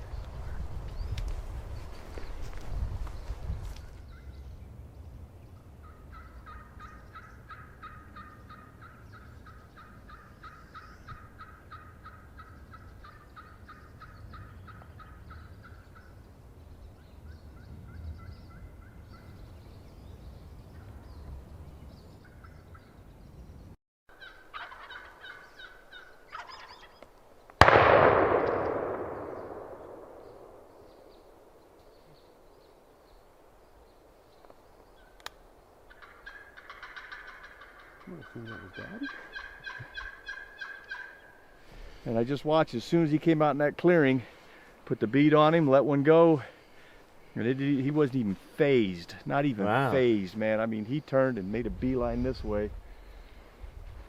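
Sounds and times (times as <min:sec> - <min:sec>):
turkey call notes: 0:05.8 - 0:16.2, 0:24.1 - 0:27.1, 0:35.9 - 0:42.0
shotgun blast echoing: 0:27.6 - 0:31.1.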